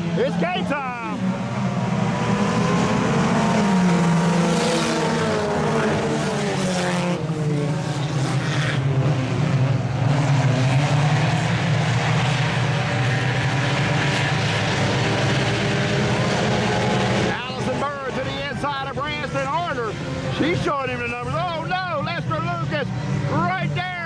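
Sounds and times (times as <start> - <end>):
race car engines overlapping: 0.0 - 24.0.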